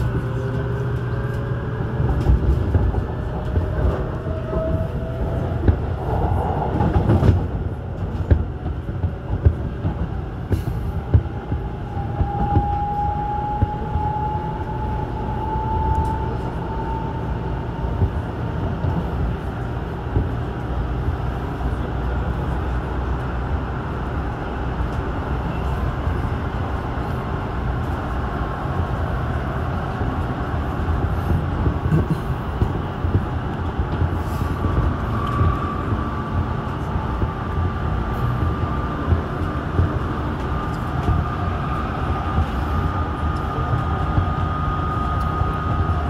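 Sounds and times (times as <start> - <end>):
electric train rumbling: 0.0 - 46.0
train motor whine: 11.5 - 18.3.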